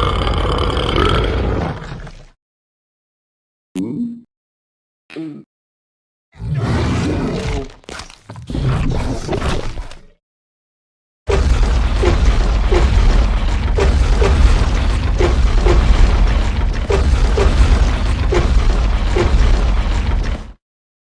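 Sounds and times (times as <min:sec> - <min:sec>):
deep steady rumble: 0:11.6 - 0:20.3.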